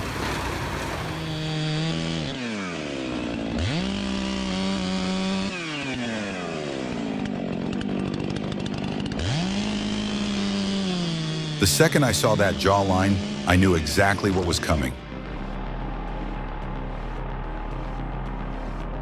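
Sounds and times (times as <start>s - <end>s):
chainsaw engine revving: 0.0s - 15.4s.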